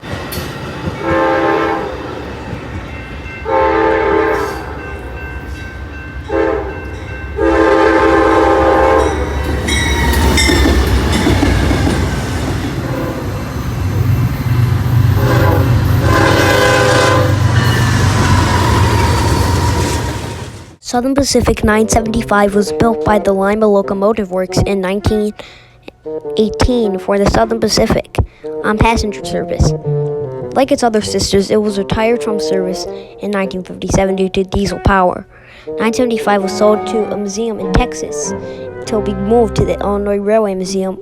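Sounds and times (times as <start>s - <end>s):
low rumble of passing train: 0.0s - 20.8s
train horn blasts: 0.9s - 2.2s, 3.4s - 20.8s
wheels clattering on rails: 9.0s - 16.8s.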